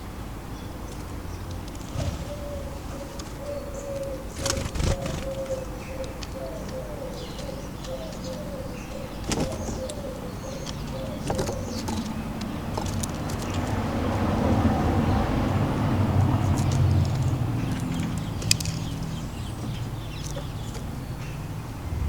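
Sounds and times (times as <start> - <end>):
small birds chirping: 0.0 - 22.0
pigeon cooing: 1.6 - 18.0.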